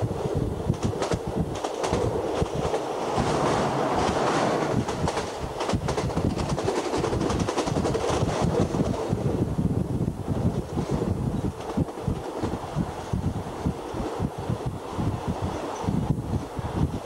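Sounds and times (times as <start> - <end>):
train rumbling: 0.0 - 17.0
wheels clattering on track: 0.7 - 9.2.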